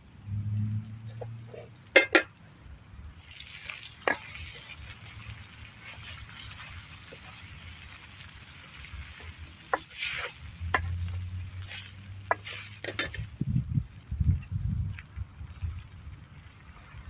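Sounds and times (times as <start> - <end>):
metal utensil clicking on pan: 1.9 - 2.3, 9.1 - 13.3
meat sizzling in a pan: 3.1 - 17.0.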